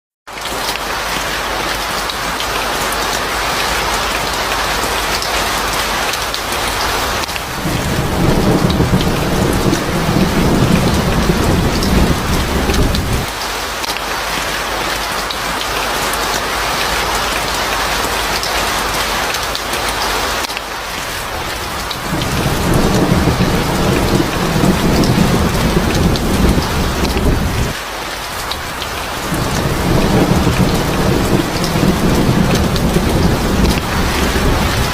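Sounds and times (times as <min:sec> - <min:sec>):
heavy rain: 0:00.3 - 0:34.9
low rolls of thunder: 0:06.8 - 0:13.3, 0:21.2 - 0:27.8, 0:28.5 - 0:34.9.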